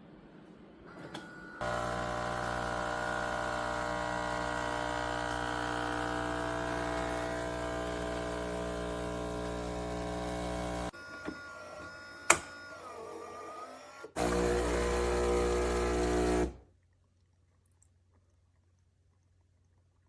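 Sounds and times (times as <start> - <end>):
espresso machine humming: 1.6 - 11.0, 14.2 - 16.6.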